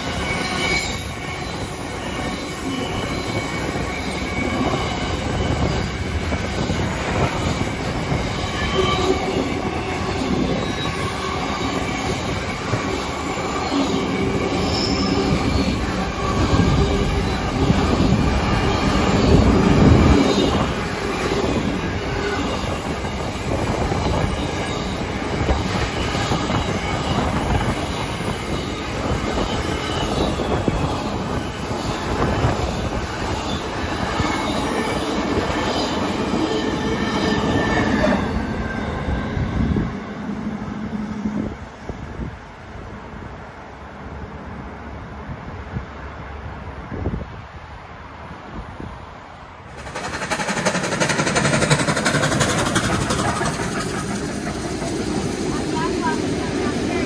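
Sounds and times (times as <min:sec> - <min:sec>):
faint high wheel squealing: 0:00.0 - 0:39.9
freight train wheels rumbling: 0:00.0 - 0:44.6, 0:48.6 - 0:57.0.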